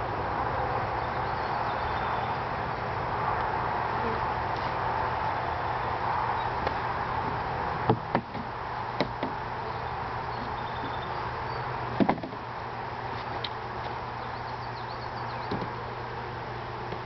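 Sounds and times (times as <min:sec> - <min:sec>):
honey bees buzzing: 0:00.0 - 0:17.0
hollow wooden knocks of hive boxes: 0:07.8 - 0:09.4, 0:12.0 - 0:12.4, 0:15.5 - 0:15.8.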